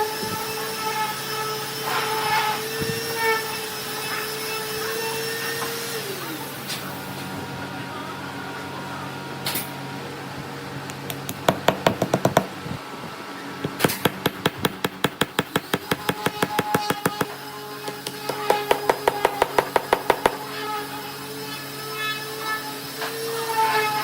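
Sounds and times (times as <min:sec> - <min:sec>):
rapid sharp knocks: 0:11.0 - 0:12.7, 0:13.6 - 0:20.7.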